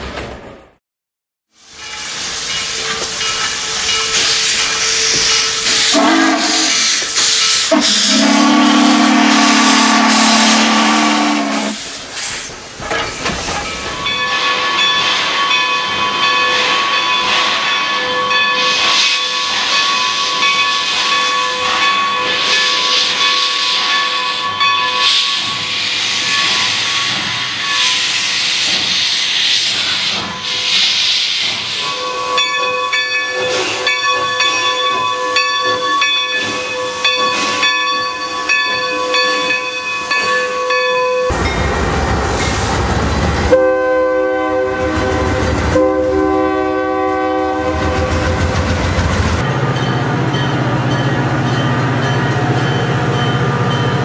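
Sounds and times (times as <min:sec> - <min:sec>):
steam venting hiss: 0:01.6 - 0:08.4, 0:22.4 - 0:32.0
steam locomotive whistle: 0:04.4 - 0:11.9, 0:43.5 - 0:48.6.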